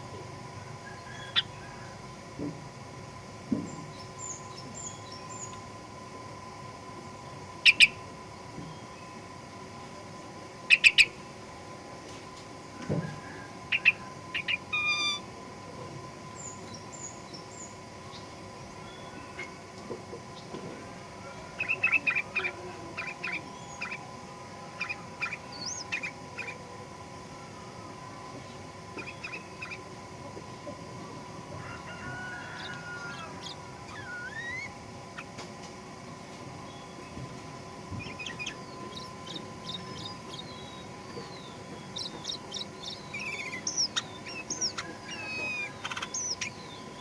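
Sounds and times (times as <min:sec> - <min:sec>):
faint steady hum: 0:00.0 - 0:47.0
bird chirping: 0:07.6 - 0:08.0, 0:10.7 - 0:11.2, 0:21.6 - 0:24.1, 0:24.8 - 0:26.6, 0:28.5 - 0:29.9, 0:31.7 - 0:35.3, 0:36.6 - 0:47.0
bird chirping and whistling: 0:33.4 - 0:34.7, 0:38.0 - 0:46.6.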